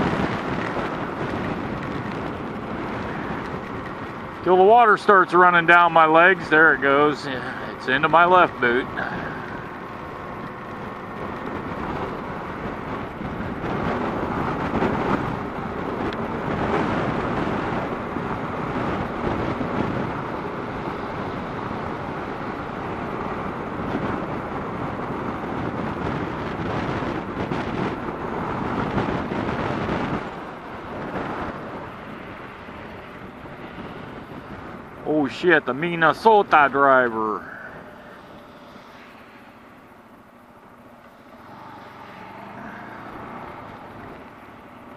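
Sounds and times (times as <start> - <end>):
motorcycle road noise: 0.0 - 44.9
wind buffeting microphone: 0.0 - 44.9.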